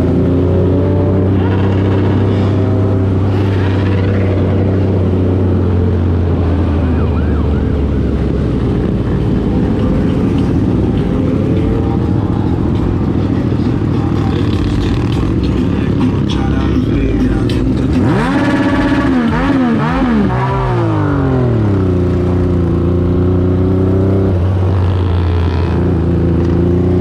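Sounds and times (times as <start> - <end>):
motorcycle engines running: 0.0 - 27.0
wavering siren-like sound: 6.6 - 8.2.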